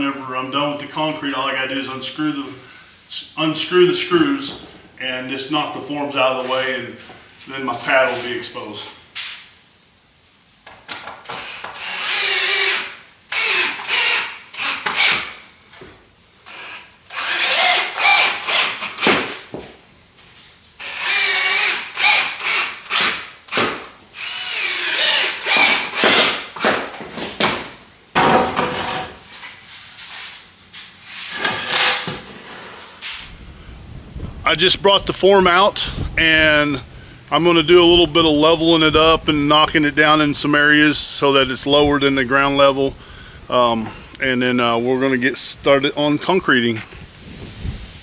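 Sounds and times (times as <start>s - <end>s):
power drill driving screws into wood: 11.0s - 15.4s, 16.5s - 19.5s, 20.8s - 26.9s, 31.3s - 32.1s.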